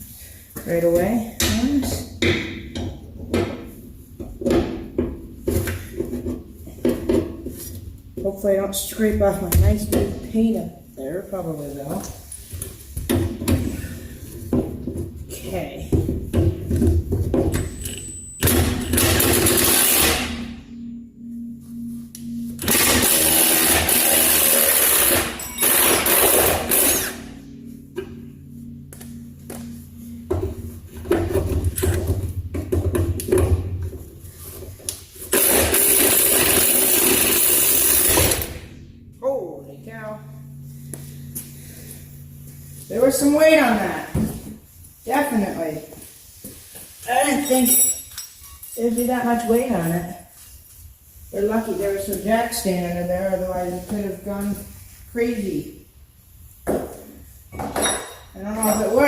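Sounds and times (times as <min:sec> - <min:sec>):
impact wrench hammering: 0:15.9 - 0:20.9, 0:21.9 - 0:33.7, 0:35.3 - 0:38.7.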